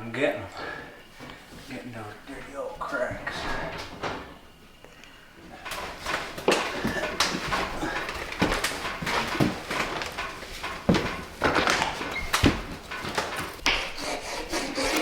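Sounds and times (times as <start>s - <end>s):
paintbrush scraping and tapping wood: 5.6s - 15.0s.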